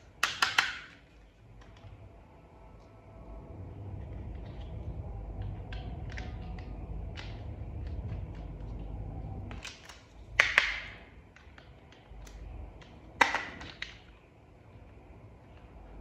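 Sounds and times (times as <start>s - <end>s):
plastic toy parts clicking: 0.1s - 1.8s.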